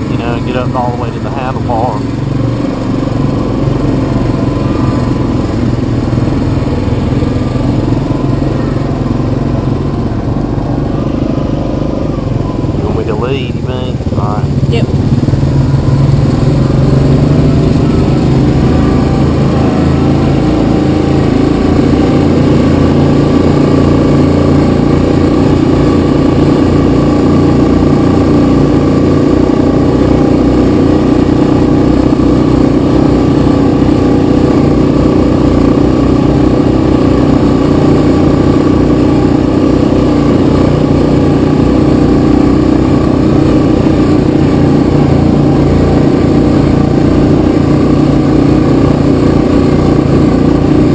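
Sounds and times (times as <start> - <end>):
atv engine running under throttle: 0.0 - 50.9.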